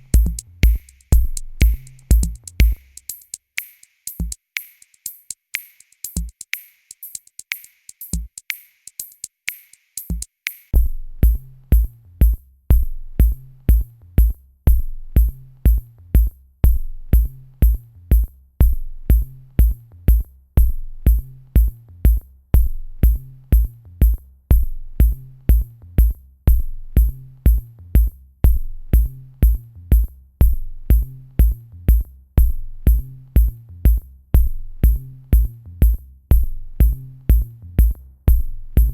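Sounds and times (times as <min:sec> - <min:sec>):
electronic drum machine music: 0:00.0 - 0:10.3.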